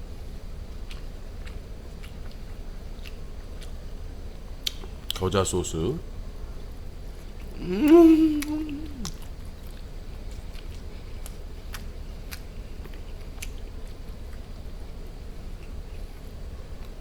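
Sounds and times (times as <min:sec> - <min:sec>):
person chewing food: 0:00.7 - 0:03.9, 0:06.7 - 0:17.0
wet mouth clicks: 0:07.4 - 0:09.3
person humming: 0:07.6 - 0:09.2.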